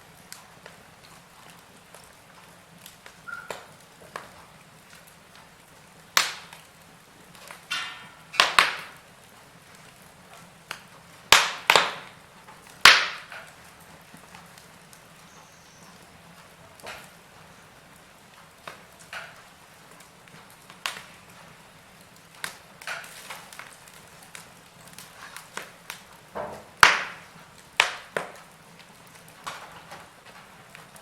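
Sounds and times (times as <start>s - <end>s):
burning wood crackling: 0.0s - 31.0s
sharp loud pops: 11.3s - 12.1s, 12.8s - 13.4s, 26.4s - 28.3s.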